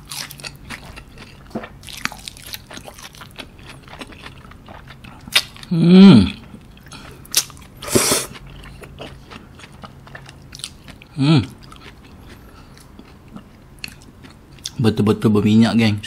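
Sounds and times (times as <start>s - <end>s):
close chewing of sandwich: 0.0s - 14.8s
wet mouth clicks: 7.8s - 8.4s.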